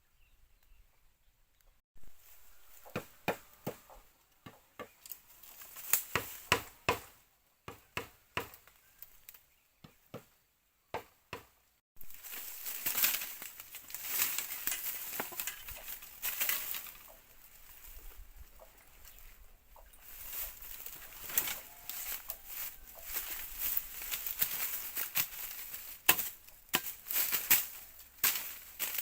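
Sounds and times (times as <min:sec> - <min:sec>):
dense crackling rustle: 0:12.0 - 0:29.0.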